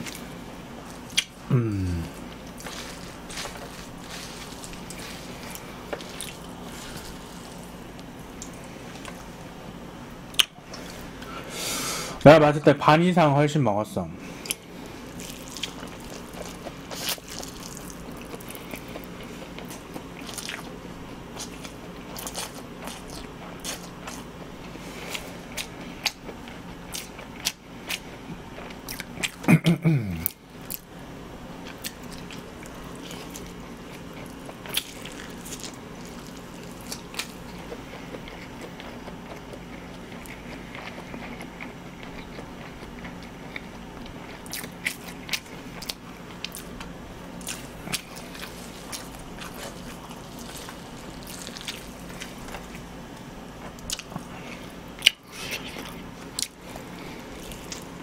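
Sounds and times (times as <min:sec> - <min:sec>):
chewing and slurping noodles: 0:00.9 - 0:07.8, 0:14.4 - 0:20.8, 0:31.7 - 0:46.8, 0:47.4 - 0:52.8, 0:53.6 - 0:58.0
low falling vocal sound: 0:01.5 - 0:02.2.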